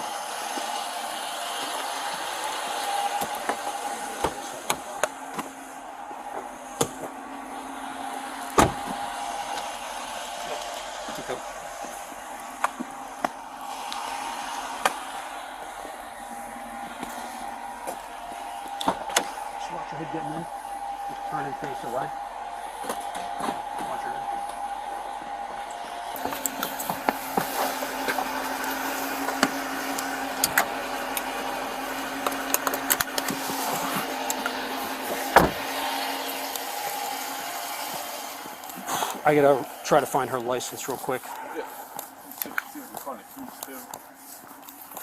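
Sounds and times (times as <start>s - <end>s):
vehicles humming by roadside: 0.0s - 45.0s
handling clicks and rustles: 1.6s - 45.0s
car door shutting: 2.5s - 5.6s, 6.2s - 15.6s, 26.2s - 37.4s.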